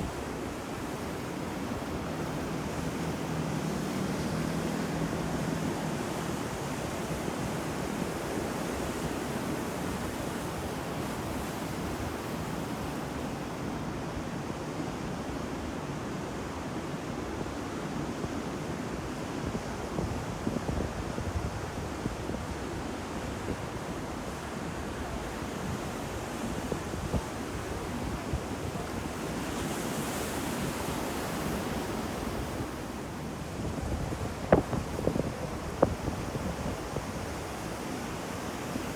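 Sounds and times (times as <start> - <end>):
ocean waves breaking on shore: 0.0 - 38.9
wind on microphone: 19.4 - 38.9.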